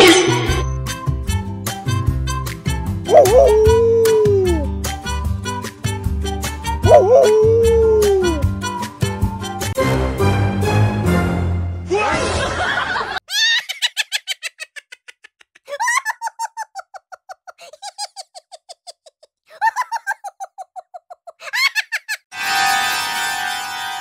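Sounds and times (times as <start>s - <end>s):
music: 0.0s - 12.6s, 22.3s - 24.0s
high-pitched giggling laughter: 12.4s - 22.3s.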